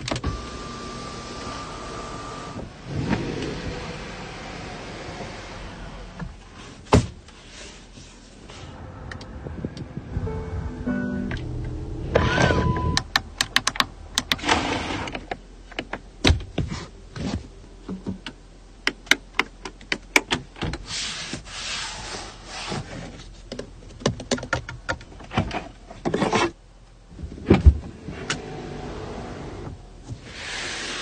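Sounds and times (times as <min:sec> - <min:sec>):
sharp clicks and taps: 0:13.0 - 0:14.4.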